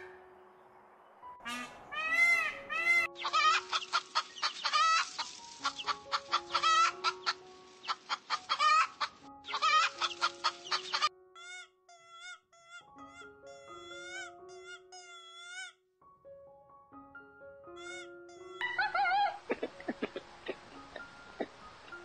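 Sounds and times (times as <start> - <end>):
soft background music: 0.0 - 22.0
hens clucking: 1.4 - 11.1
peacock call: 1.4 - 15.7, 17.8 - 19.6.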